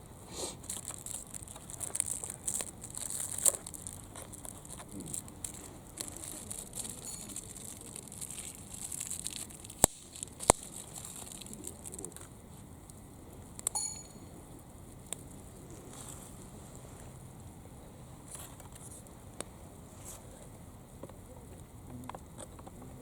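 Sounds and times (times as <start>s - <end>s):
rustling and handling noises: 0.0s - 14.4s, 15.0s - 17.6s, 18.2s - 22.8s
ringing metallic clink: 13.7s - 14.4s.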